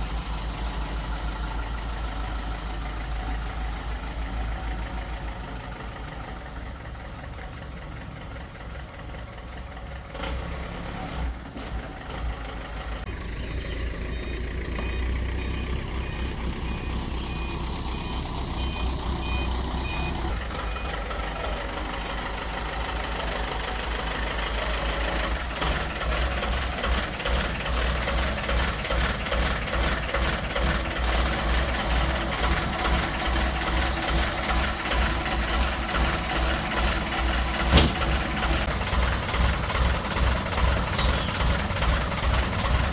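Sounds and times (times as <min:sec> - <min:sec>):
vehicle engine rumbling: 0:00.0 - 0:42.9
short beeps: 0:14.2 - 0:20.9.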